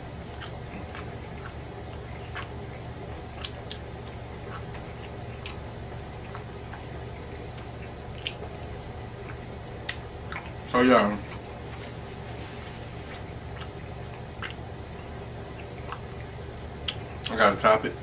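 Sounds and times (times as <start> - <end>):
chewing and lip smacking: 0.0 - 17.4
steady low hum: 0.0 - 18.0
wet mouth clicks: 0.3 - 5.6, 6.3 - 11.4, 13.5 - 14.6, 15.5 - 17.4.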